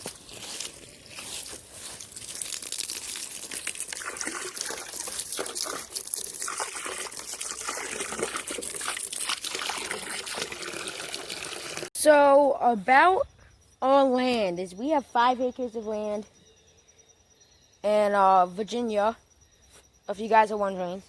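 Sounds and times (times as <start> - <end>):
water pouring into a bucket: 1.8 - 11.9.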